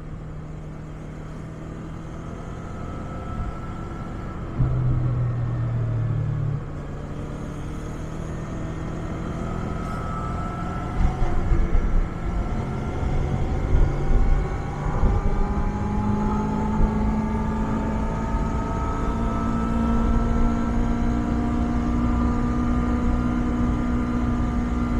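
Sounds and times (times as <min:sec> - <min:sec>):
motorcycle engine exhaust note: 0:02.9 - 0:24.9
uneven low thumps: 0:04.5 - 0:06.8.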